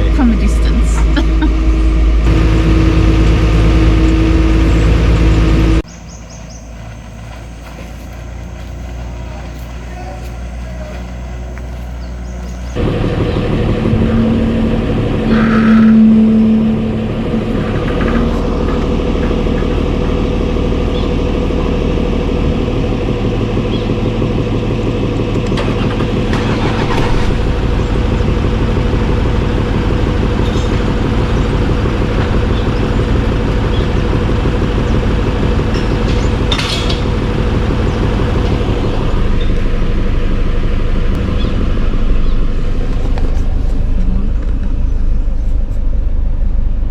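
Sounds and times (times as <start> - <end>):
loud held tone: 0.0 - 5.8, 12.8 - 22.0
vehicle engine running: 0.0 - 46.9.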